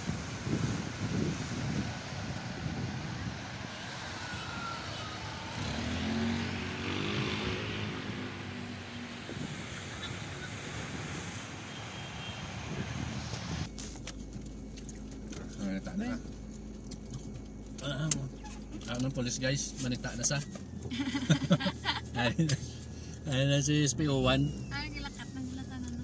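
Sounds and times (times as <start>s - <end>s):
engine hum: 0.0s - 26.0s
tyres on wet road: 0.0s - 26.0s.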